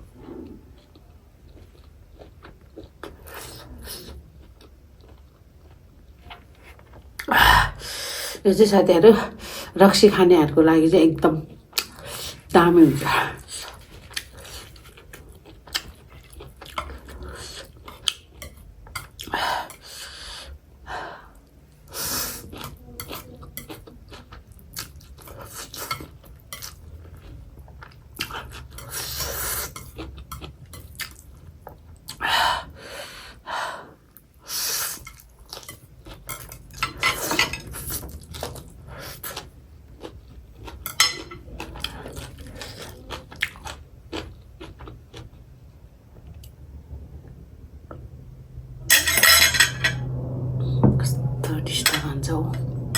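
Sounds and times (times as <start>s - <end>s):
chewing food: 0.4s - 7.3s, 13.4s - 20.0s, 22.3s - 32.2s, 34.8s - 46.6s
cutlery clinking on a plate: 40.9s - 41.4s, 48.9s - 50.1s.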